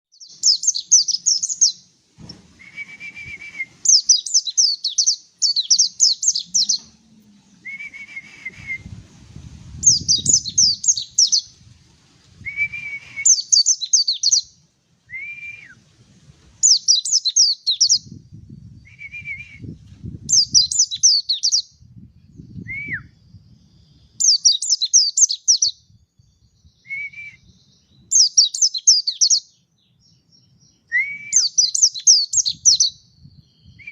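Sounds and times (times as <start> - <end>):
bird twittering: 3.8 - 7.0, 9.8 - 11.5, 31.3 - 32.9
low rumble: 6.4 - 10.5
bird whistled notes: 7.6 - 8.9, 9.8 - 11.5, 12.4 - 14.5, 30.9 - 33.9.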